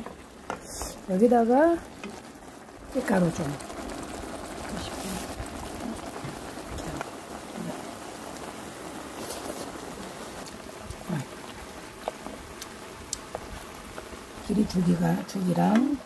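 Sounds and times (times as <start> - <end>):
zucchini sizzling in a pan: 0.0 - 16.0.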